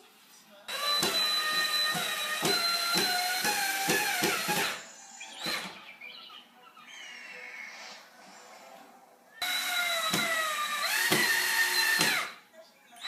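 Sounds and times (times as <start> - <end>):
power drill drilling into drywall: 0.7 - 4.8, 9.4 - 12.4.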